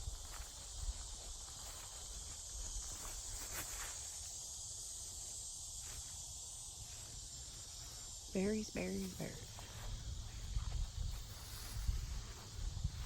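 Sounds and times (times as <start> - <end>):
high-pitched insect drone: 0.0 - 13.0
faint rustles: 0.1 - 4.4.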